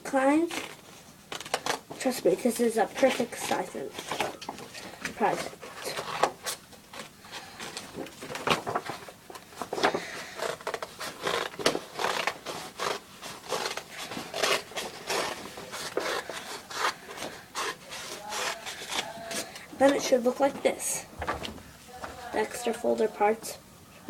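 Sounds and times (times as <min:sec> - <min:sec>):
scissors cutting folder: 0:09.8 - 0:19.5.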